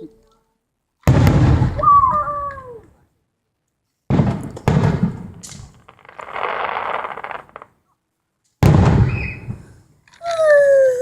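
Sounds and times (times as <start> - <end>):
fireworks bangs: 1.0 - 2.8, 4.1 - 7.8, 8.6 - 9.8
fireworks hissing: 5.6 - 7.7.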